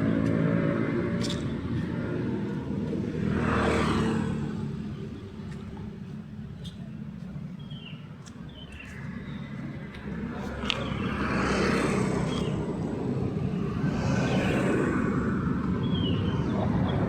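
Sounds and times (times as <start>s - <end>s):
street traffic passing: 0.0s - 17.0s.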